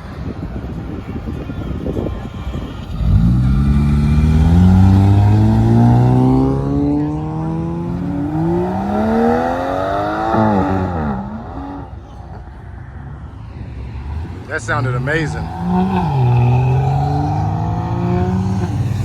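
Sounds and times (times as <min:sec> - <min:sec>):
car engine accelerating hard: 0:02.8 - 0:12.4, 0:14.0 - 0:19.0.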